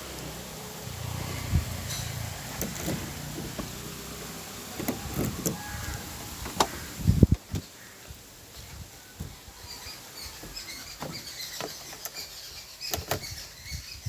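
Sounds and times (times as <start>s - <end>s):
knocks and clunks: 1.5s - 3.9s.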